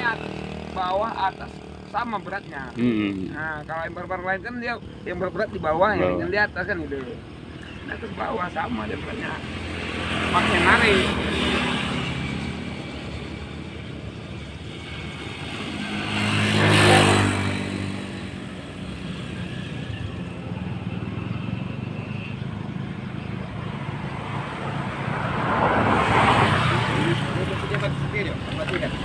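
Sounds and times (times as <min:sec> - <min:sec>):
vehicle approaching: 0:00.0 - 0:29.0
vehicle passing: 0:07.8 - 0:29.0.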